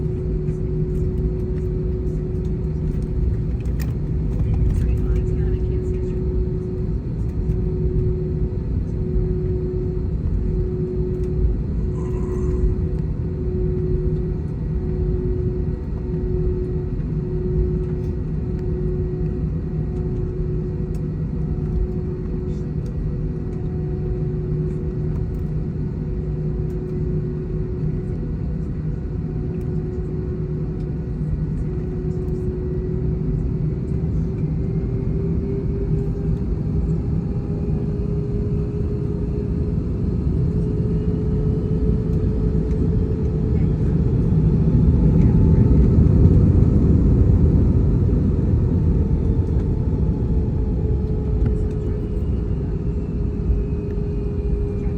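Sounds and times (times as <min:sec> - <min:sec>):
jet engine cabin rumble: 0:00.0 - 0:54.9.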